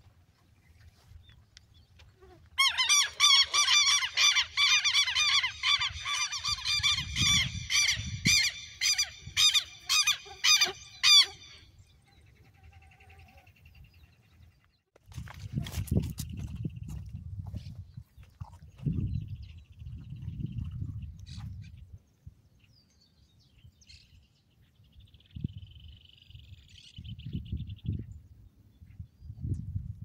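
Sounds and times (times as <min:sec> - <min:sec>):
bird honking calls: 0:02.6 - 0:13.6.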